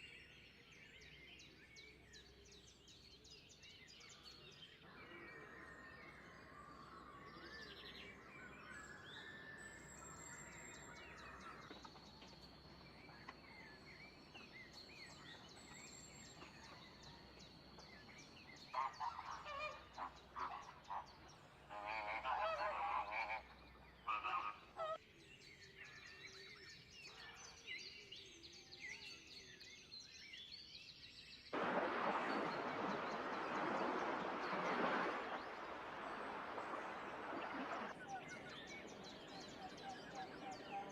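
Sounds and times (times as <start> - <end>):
birds calling: 4.8 - 25.0, 31.6 - 40.9
steady rushing noise: 31.6 - 37.9.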